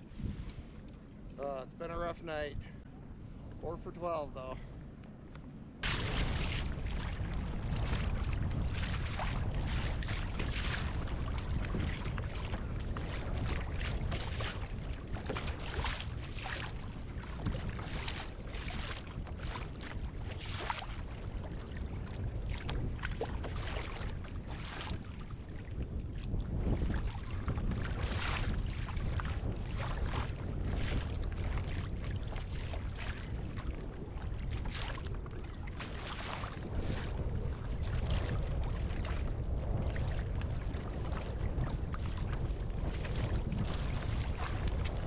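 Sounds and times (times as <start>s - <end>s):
wind rumbling on microphone: 0.0s - 45.0s
water slapping against kayak: 5.3s - 45.0s.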